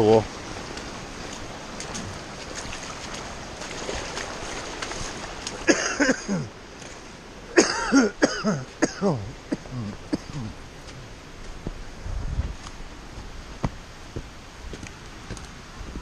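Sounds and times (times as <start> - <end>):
person's voice bursts: 8.5 - 10.6.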